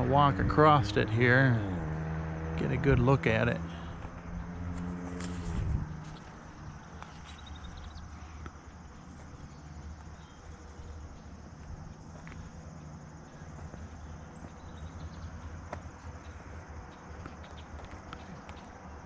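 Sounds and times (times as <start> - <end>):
insects chirring: 0.7 - 19.0
footsteps on bridge deck: 4.0 - 18.8.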